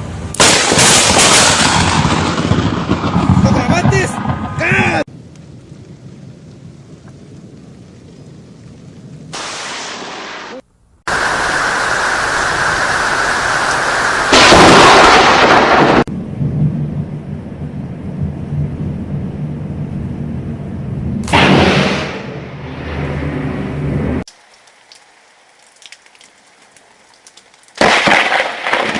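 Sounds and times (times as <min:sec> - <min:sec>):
low thunder rumbling: 0:00.0 - 0:24.3
thunder crash: 0:00.4 - 0:24.3, 0:27.8 - 0:28.9
rain hissing: 0:04.6 - 0:16.1, 0:24.2 - 0:28.9.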